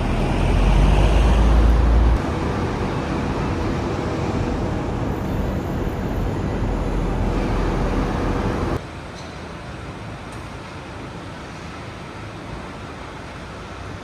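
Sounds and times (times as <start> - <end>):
car engines and tyre noise: 0.0 - 8.8.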